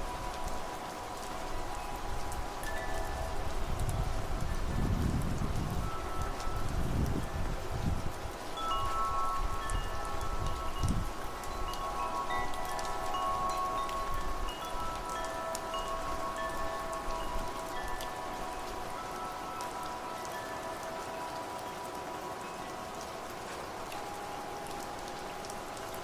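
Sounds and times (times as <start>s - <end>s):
low wind gusts: 0.0s - 26.0s
steady rain: 0.0s - 26.0s
wind chimes ringing: 0.0s - 26.0s.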